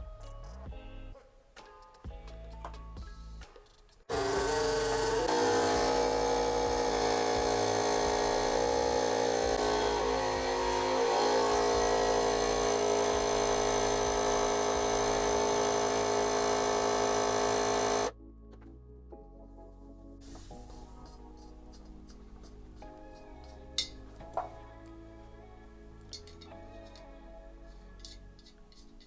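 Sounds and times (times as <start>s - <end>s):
small motor whining: 4.1s - 18.1s.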